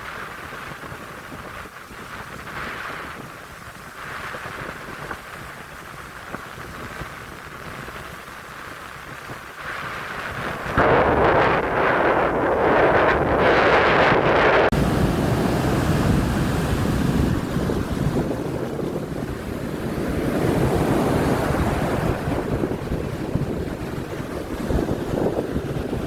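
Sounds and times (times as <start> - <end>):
surf breaking on beach: 0.0 - 26.0
wind buffeting microphone: 0.0 - 26.0
hissing rush: 9.6 - 24.6.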